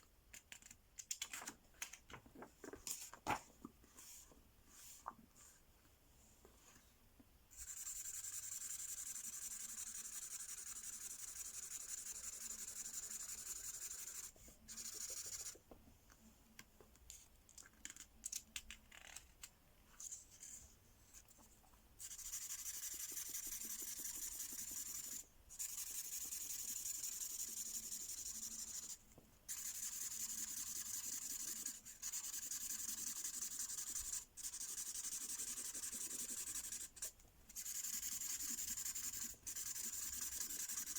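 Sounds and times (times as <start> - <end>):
marker pen scribbling on paper: 7.6 - 15.6, 22.0 - 40.9.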